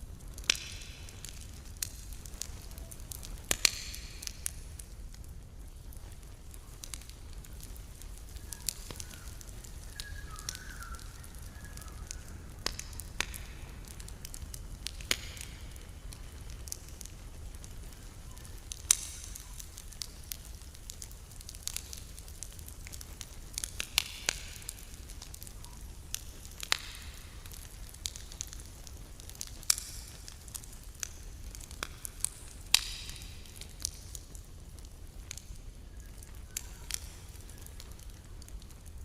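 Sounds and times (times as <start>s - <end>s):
campfire crackling: 0.0s - 39.0s
faint thin whistle: 8.4s - 12.6s.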